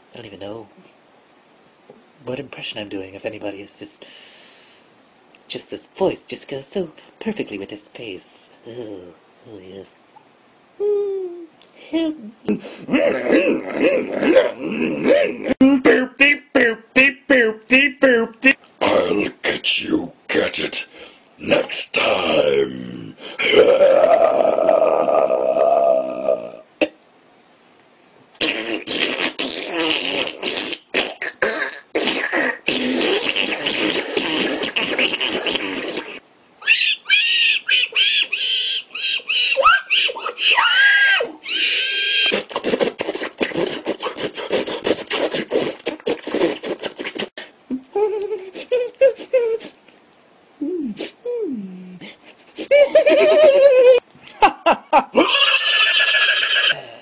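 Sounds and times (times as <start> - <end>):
man making strange vocal noises: 8.6 - 9.9, 10.8 - 27.0, 28.4 - 40.6, 41.2 - 49.8, 50.6 - 57.0
high squeaky vocal sounds: 28.4 - 47.4, 55.2 - 56.9.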